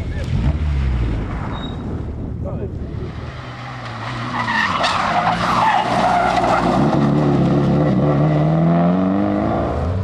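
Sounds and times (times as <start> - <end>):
rally car engine revving: 2.7 - 10.0.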